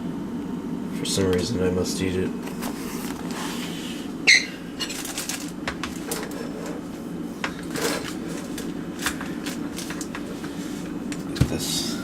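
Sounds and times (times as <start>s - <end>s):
steady low hum: 0.0s - 12.0s
food packaging rustling: 2.5s - 11.0s.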